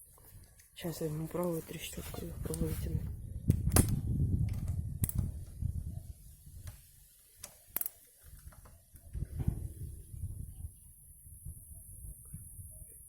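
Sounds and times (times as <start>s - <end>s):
low rumble of handling: 8.2s - 10.8s.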